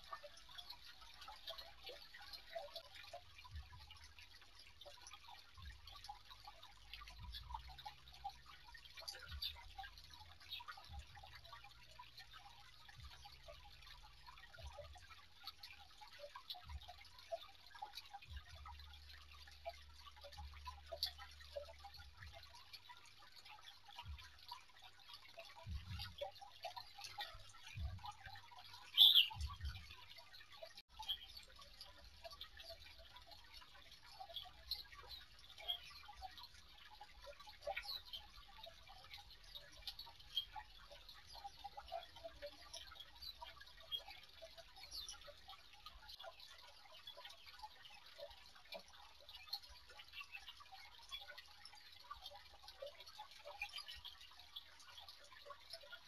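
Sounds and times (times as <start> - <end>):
small ticking sounds: 0.0 - 56.0
birds chirping: 28.8 - 29.8.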